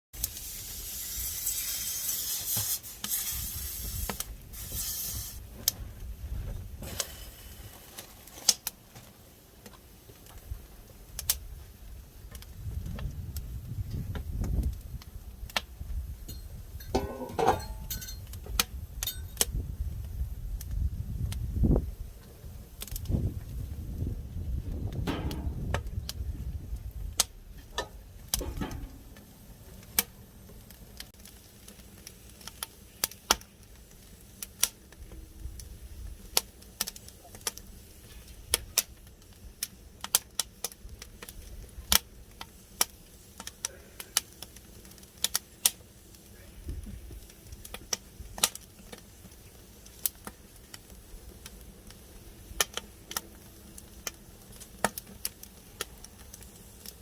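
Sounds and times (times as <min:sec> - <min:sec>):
wood fire crackling: 0:00.2 - 0:57.0
low rumbling noise: 0:23.2 - 0:29.7
sharp pops: 0:24.8 - 0:26.2.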